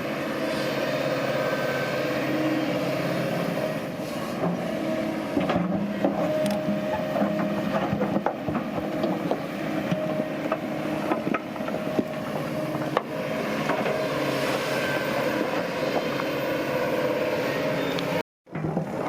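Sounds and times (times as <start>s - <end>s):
diesel engine running: 0.0s - 18.2s.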